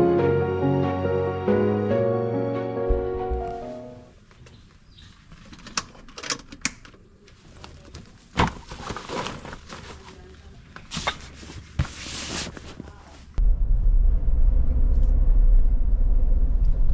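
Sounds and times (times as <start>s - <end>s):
rustling handling noise: 7.2s - 13.4s.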